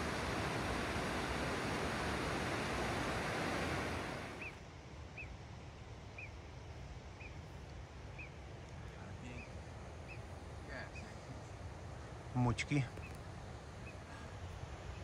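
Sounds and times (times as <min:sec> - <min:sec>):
rushing mountain stream: 0:00.0 - 0:04.5.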